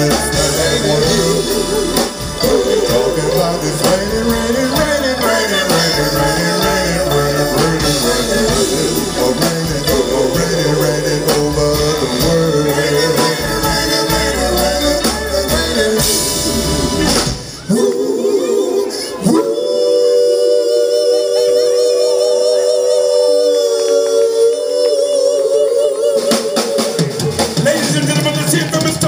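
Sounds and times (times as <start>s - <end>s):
soul band playing a ballad: 0.0s - 18.1s
sustained wordless singing: 0.0s - 27.9s.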